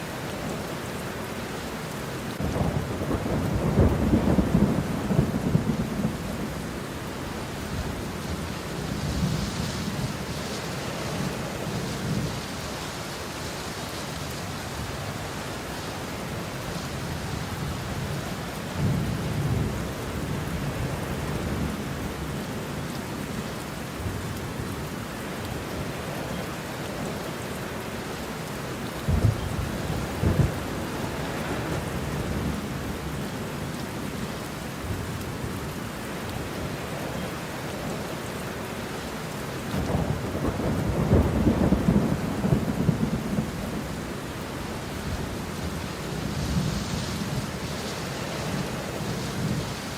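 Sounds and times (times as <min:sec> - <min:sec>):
steady rain: 0:00.0 - 0:49.9
thunder rumbling: 0:02.4 - 0:12.6, 0:29.1 - 0:33.0, 0:39.7 - 0:49.9.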